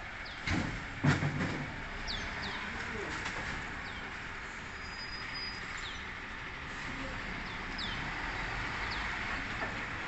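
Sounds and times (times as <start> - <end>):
birds chirping: 0.1 - 0.5, 2.0 - 6.3, 7.1 - 9.3.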